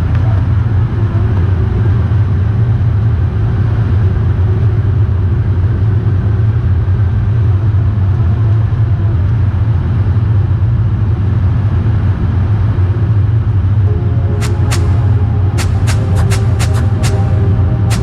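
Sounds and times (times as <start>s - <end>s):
jet cabin low rumble: 12.8s - 18.0s.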